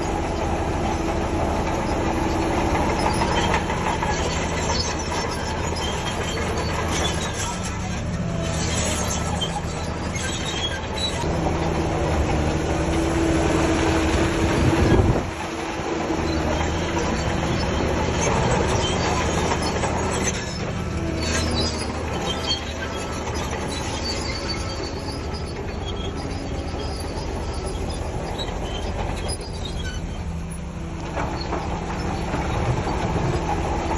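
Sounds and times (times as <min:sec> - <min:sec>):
bulldozer engine running: 0:00.0 - 0:33.9
steel tracks squealing and clanking: 0:00.0 - 0:33.9.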